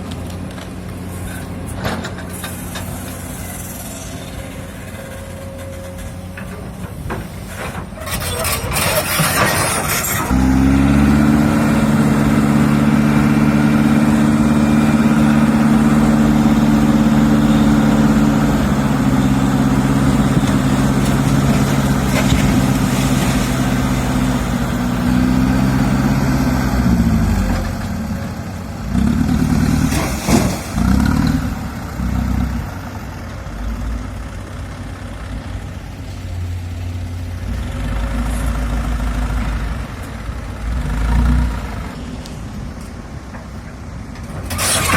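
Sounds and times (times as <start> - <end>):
excavator diesel engine revving: 7.8 - 33.2
short rough clatter: 29.7 - 31.3, 44.2 - 44.9.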